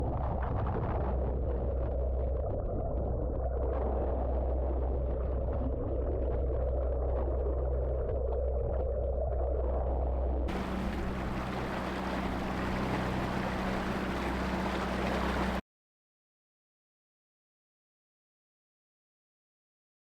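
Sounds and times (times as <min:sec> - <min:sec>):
hull rumbling through water: 0:00.0 - 0:15.6
hiss of water and wind: 0:10.5 - 0:15.6.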